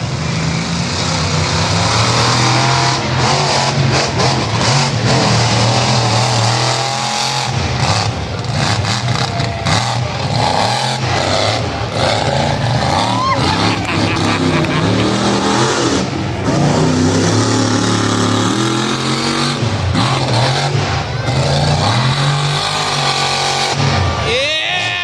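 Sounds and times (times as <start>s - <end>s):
monster truck engine revving: 0.0s - 25.0s.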